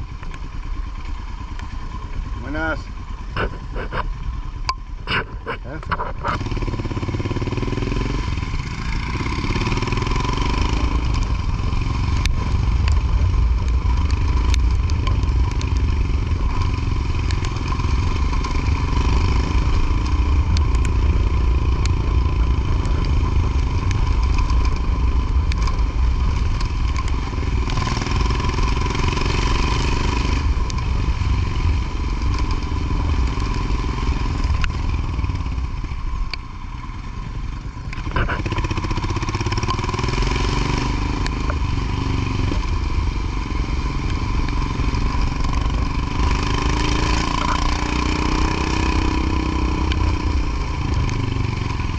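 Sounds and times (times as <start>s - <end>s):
motorcycle engine rumble: 0.0s - 51.9s
sharp clicks and rattles: 0.1s - 7.6s, 8.5s - 31.0s.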